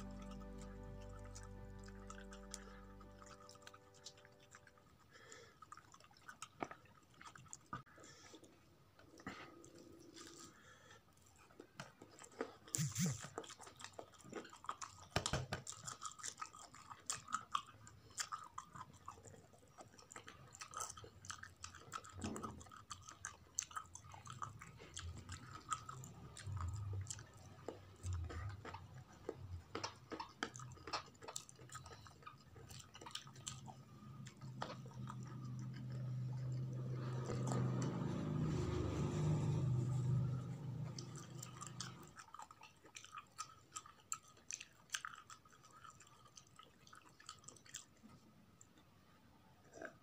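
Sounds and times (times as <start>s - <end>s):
steady low hum: 0.0s - 4.7s
person chewing rice: 0.0s - 48.9s.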